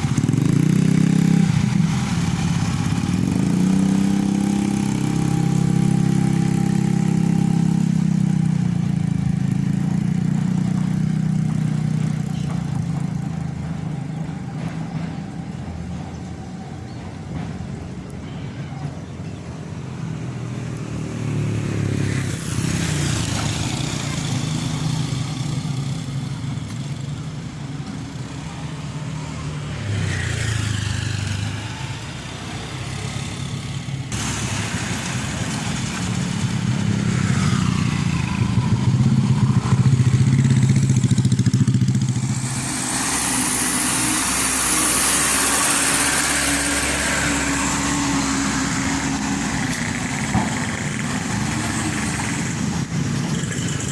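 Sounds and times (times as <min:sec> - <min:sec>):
diesel truck engines revving: 0:00.0 - 0:53.9
strong hiss: 0:34.2 - 0:37.1, 0:37.7 - 0:52.9.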